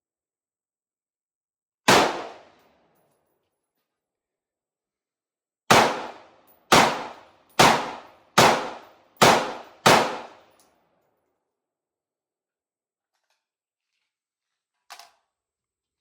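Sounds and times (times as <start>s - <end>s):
rifle shots with echo: 1.9s - 2.6s, 5.7s - 10.5s.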